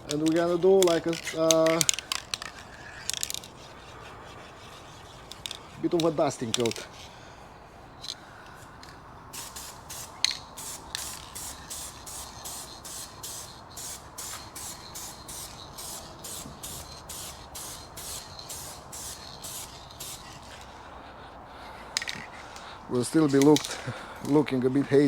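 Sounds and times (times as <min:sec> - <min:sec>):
aerosol spray can hissing: 0:00.0 - 0:07.0, 0:09.3 - 0:20.7.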